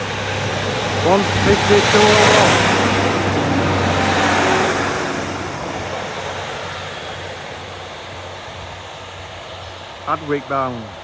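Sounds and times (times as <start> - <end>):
diesel train rumbling away: 0.0 - 11.0.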